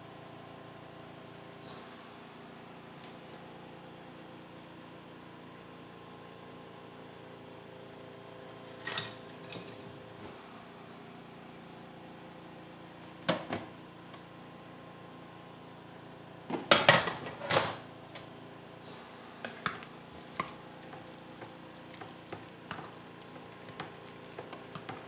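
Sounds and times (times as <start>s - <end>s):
utensil scraping a cooking pot: 20.0s - 25.0s.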